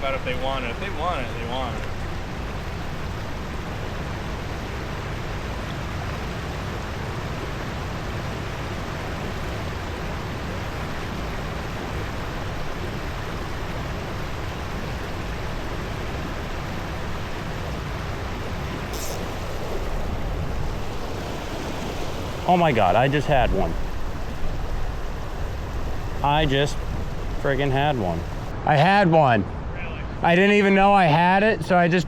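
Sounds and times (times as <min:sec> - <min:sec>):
stream water rushing over rocks: 0:00.0 - 0:29.0.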